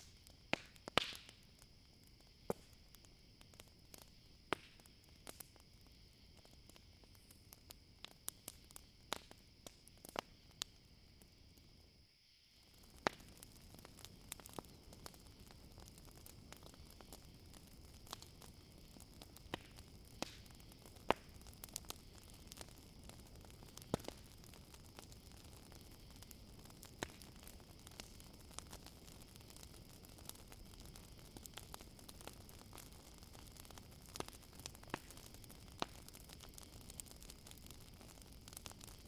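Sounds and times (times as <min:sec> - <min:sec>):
campfire crackling: 0:00.0 - 0:39.0
crickets chirring: 0:00.0 - 0:39.0.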